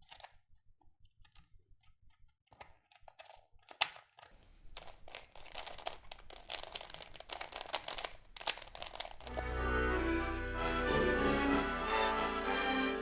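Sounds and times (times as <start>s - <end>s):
plastic clicks: 0.0s - 9.4s
plastic crackling and crinkling: 2.3s - 9.4s.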